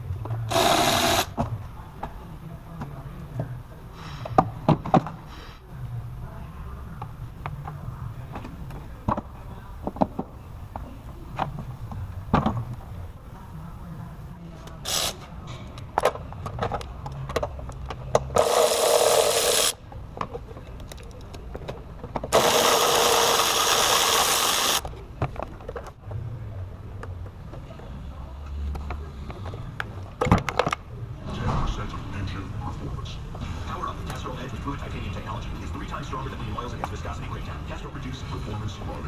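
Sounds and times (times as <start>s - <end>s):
power tool bursts: 0.5s - 1.4s, 18.4s - 19.8s, 22.3s - 24.8s.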